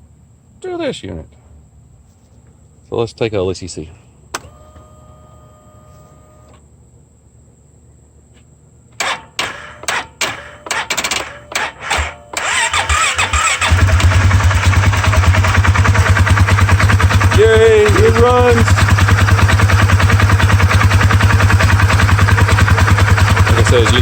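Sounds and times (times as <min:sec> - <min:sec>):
faint steady hum: 0:00.0 - 0:09.4
engine cranking and sputtering: 0:09.0 - 0:24.0
engine running loud and rough: 0:12.4 - 0:24.0.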